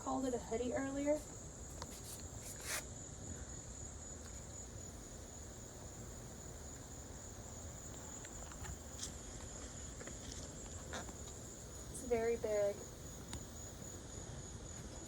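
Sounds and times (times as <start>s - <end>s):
low hiss: 0.0s - 9.9s.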